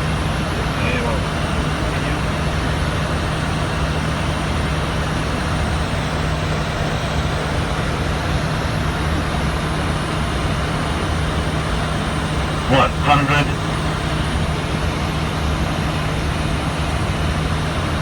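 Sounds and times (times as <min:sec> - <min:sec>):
aircraft engine noise: 0:00.0 - 0:18.0
constant low hum: 0:00.0 - 0:18.0.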